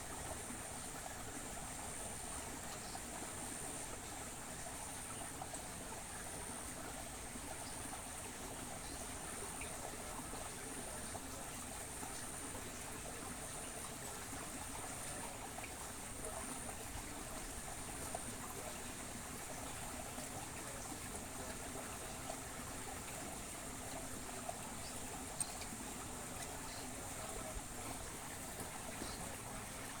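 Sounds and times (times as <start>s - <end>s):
water flowing in a stream: 0.0s - 30.0s
faint clicks: 24.8s - 26.9s.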